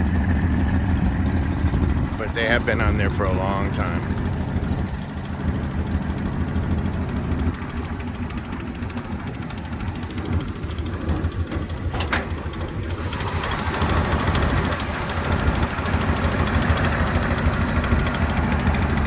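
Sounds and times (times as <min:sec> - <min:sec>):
car engine idling: 0:00.0 - 0:19.0
rushing hiss: 0:12.9 - 0:18.9.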